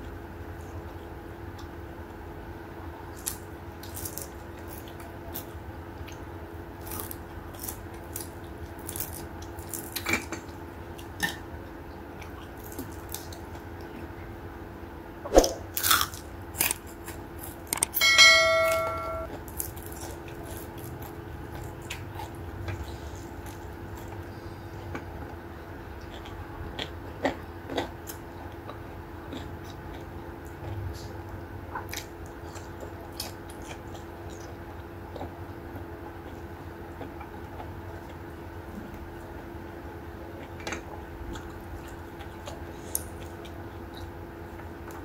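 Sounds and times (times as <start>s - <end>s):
steady low hum: 0.0s - 45.0s
short ringing tone: 18.0s - 19.4s
chewing and wet mouth smacks: 26.0s - 35.4s, 40.4s - 45.0s.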